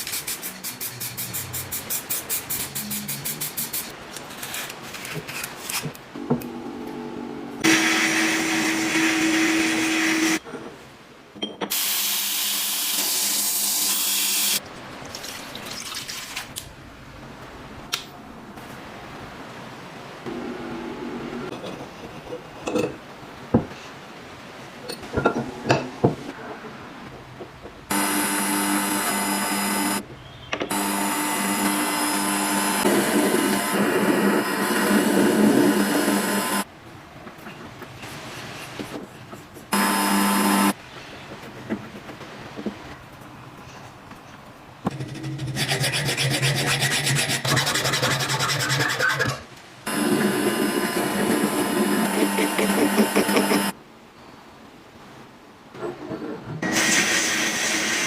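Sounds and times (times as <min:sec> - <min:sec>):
electric power tool motor whining: 0:27.9 - 0:30.0, 0:30.7 - 0:36.6, 0:39.8 - 0:40.7, 0:49.9 - 0:53.7
power tool rasping on surface: 0:45.0 - 0:53.7.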